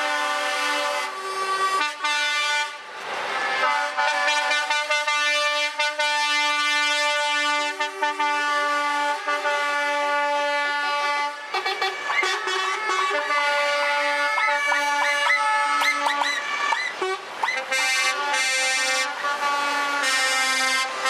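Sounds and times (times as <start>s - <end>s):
truck air horns blowing: 0.0s - 21.0s.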